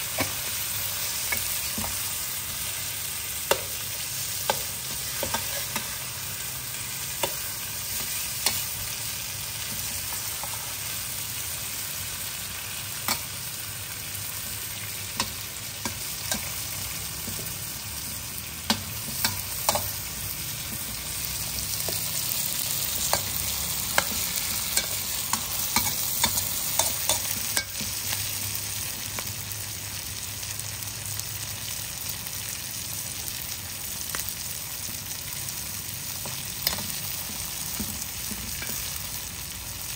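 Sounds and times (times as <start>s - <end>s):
prawns sizzling in a wok: 0.0s - 39.9s
metal spatula scraping a wok: 3.4s - 6.2s.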